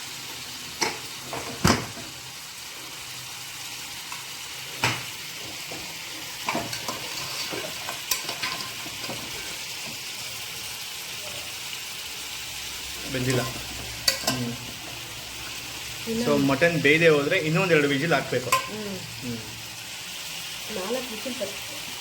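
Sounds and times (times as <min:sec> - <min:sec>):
food sizzling in a pan: 0:00.0 - 0:22.0
utensils clanking against pots: 0:00.8 - 0:02.1, 0:04.8 - 0:10.1, 0:13.1 - 0:15.1, 0:18.4 - 0:18.8
stirring clinks and scrapes: 0:06.4 - 0:09.5.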